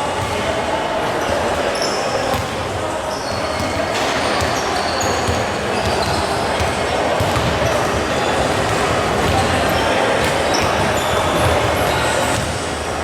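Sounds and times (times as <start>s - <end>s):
crowd noise in hall: 0.0s - 13.0s
sneaker squeaks on court: 1.2s - 12.6s
basketball bouncing: 5.2s - 12.6s.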